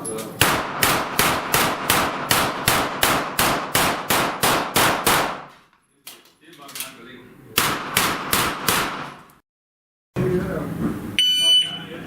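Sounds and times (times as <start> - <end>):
pistol shots: 0.4 - 5.5, 7.6 - 9.2.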